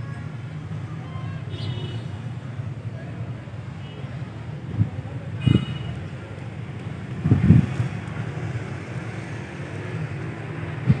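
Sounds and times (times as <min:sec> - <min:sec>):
wind buffeting microphone: 0:04.6 - 0:08.7, 0:10.6 - 0:11.0.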